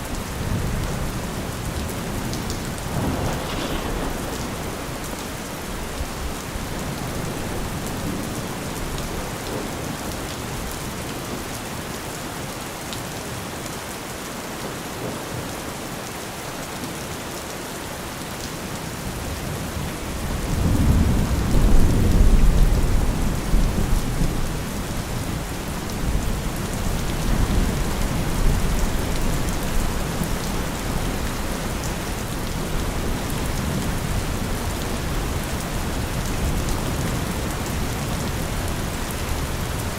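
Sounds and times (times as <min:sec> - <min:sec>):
steady rain falling: 0:00.0 - 0:39.9
thunder rumbling: 0:00.3 - 0:10.0.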